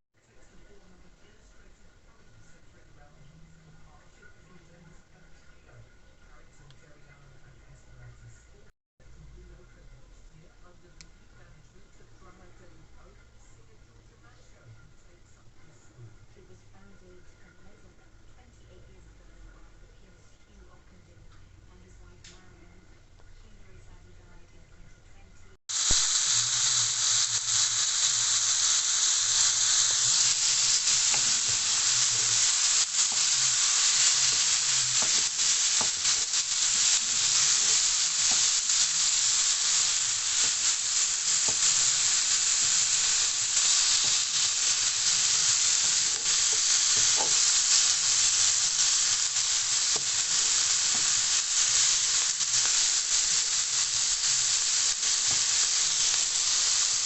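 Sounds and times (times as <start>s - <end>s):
food sizzling in a pan: 25.7s - 57.0s
small pops of frying: 25.7s - 57.0s.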